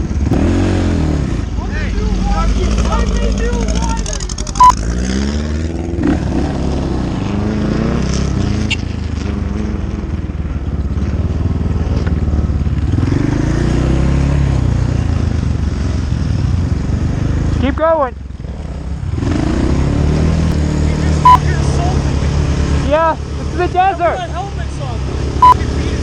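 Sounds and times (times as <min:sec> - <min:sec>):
dirt bike engine revving: 0:00.0 - 0:10.1, 0:12.8 - 0:15.2, 0:18.5 - 0:26.0.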